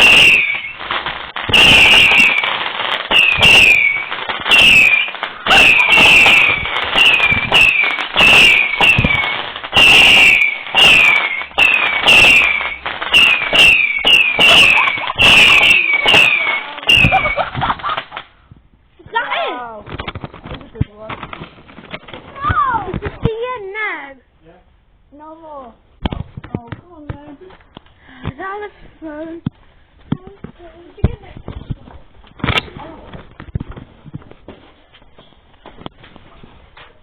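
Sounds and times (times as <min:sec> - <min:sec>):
high falling firework whistle: 0:00.0 - 0:18.0
firework barrage bangs: 0:00.0 - 0:18.3.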